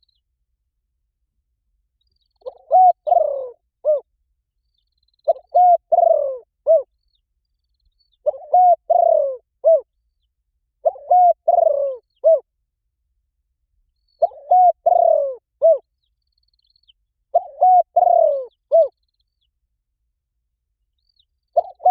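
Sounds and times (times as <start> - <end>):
dove cooing: 2.4 - 4.1, 5.2 - 6.9, 8.2 - 9.9, 10.8 - 12.5, 14.2 - 15.9, 17.3 - 19.0, 21.6 - 21.9.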